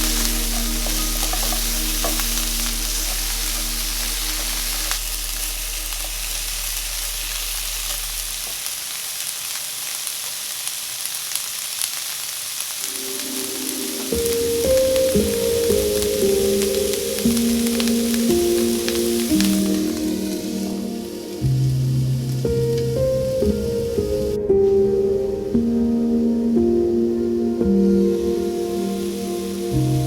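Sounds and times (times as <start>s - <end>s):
soft background music: 0.0s - 6.3s, 12.8s - 30.0s
food sizzling in a pan: 0.0s - 22.5s.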